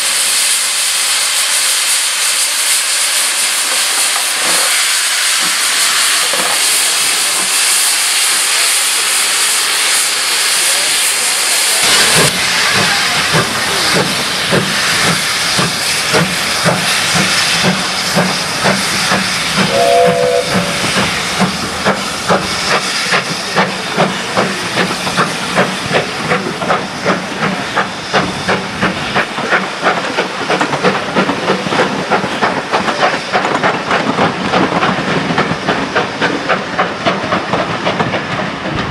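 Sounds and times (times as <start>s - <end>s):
steam locomotive chuffing: 0.0s - 38.9s
steam locomotive hissing: 0.0s - 38.9s
train whistle blast: 19.6s - 21.2s.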